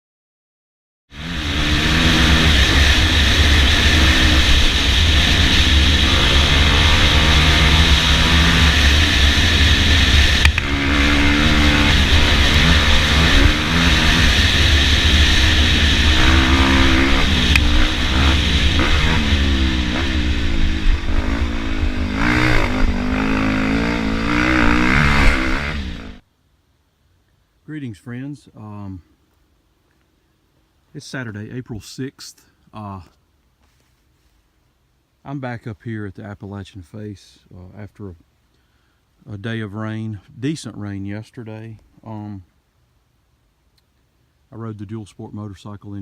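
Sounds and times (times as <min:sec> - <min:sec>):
motorcycle engine revving: 0:01.1 - 0:26.2.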